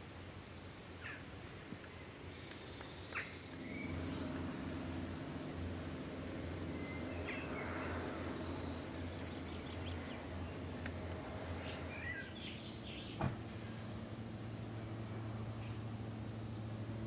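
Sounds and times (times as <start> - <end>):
steady low hum: 0.0 - 17.0
small birds chirping: 1.0 - 14.0.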